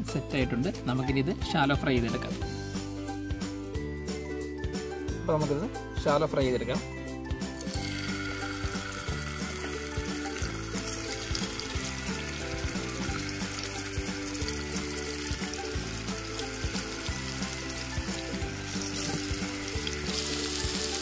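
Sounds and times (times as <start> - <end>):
background music: 0.0 - 21.0
food sizzling in hot oil: 7.2 - 21.0.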